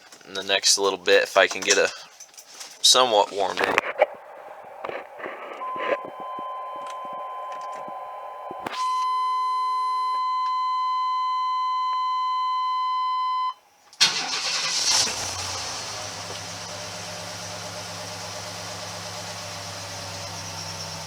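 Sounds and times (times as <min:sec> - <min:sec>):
dashboard warning tone: 0:05.4 - 0:13.6
engine cranking and idling: 0:14.0 - 0:21.0.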